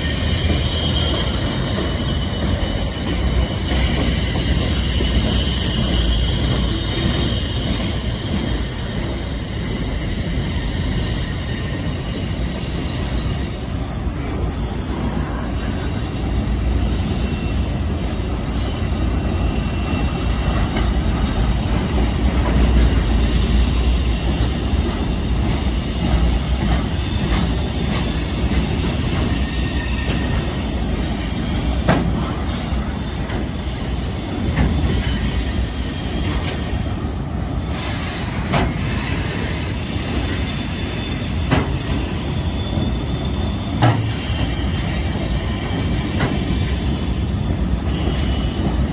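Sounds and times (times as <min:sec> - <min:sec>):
high-pitched wheel squeal: 0:00.0 - 0:13.7, 0:22.6 - 0:48.9
train wheels rumbling on rails: 0:00.0 - 0:48.9
wheels clicking over rail joints: 0:19.4 - 0:39.6.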